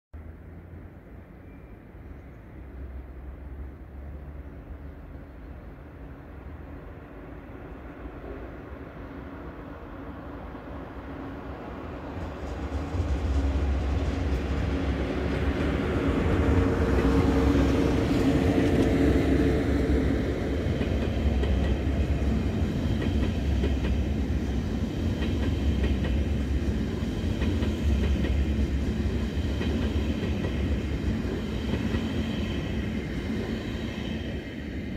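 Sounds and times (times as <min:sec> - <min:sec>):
train wheels rumbling on rails: 0:07.8 - 0:34.9.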